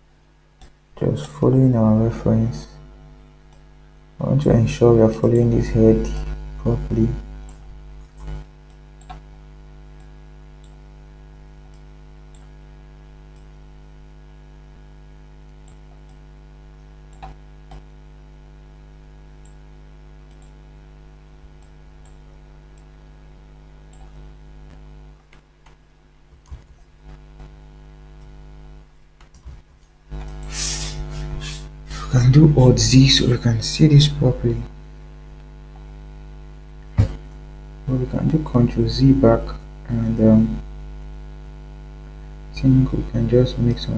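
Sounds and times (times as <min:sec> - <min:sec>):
electrical mains hum: 0:00.0 - 0:43.9
computer mouse clicks: 0:07.4 - 0:09.3, 0:10.0 - 0:10.8, 0:11.6 - 0:12.5, 0:17.1 - 0:17.9, 0:20.2 - 0:20.6, 0:21.6 - 0:22.2, 0:23.9 - 0:27.5
keyboard clicks: 0:07.4 - 0:09.3, 0:17.1 - 0:17.8, 0:20.2 - 0:20.6.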